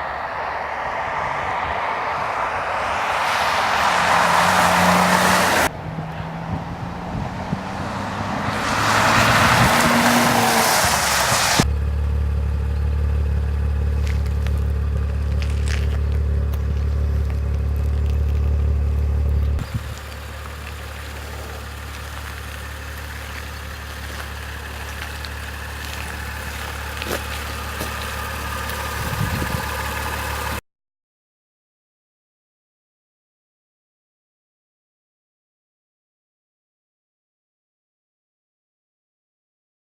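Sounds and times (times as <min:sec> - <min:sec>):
car engine idling: 0:00.0 - 0:30.6.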